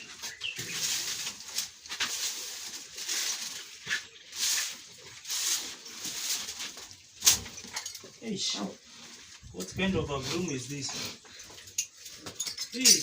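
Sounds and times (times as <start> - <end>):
broom sweeping sawdust: 0.0 - 7.0.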